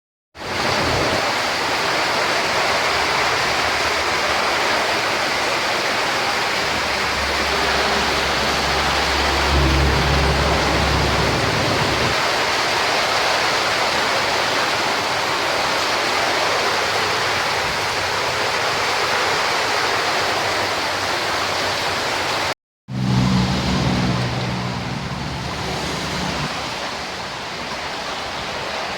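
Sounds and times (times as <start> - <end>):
heavy rain and wind: 0.4 - 28.9
low rumble: 7.0 - 12.2.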